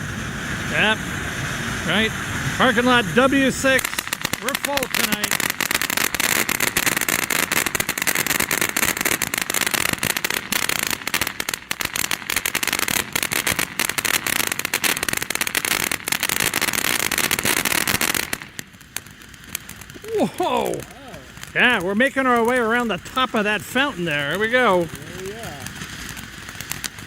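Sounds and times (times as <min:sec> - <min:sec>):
firework fountain crackling and hissing: 0:00.0 - 0:27.0.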